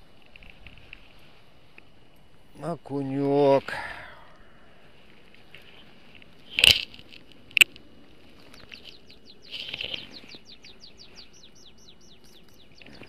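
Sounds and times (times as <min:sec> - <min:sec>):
small bird trilling: 0:08.5 - 0:12.9.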